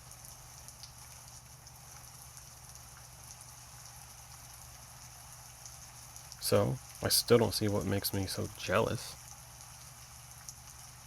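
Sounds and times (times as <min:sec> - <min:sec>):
faint steady rain: 0:00.0 - 0:11.0
low steady hum: 0:00.0 - 0:11.0.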